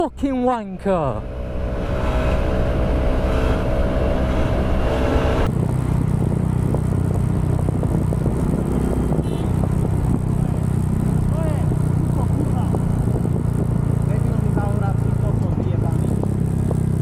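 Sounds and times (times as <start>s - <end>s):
motorcycle engine running: 0.8s - 17.0s
wind noise on microphone: 1.4s - 17.0s.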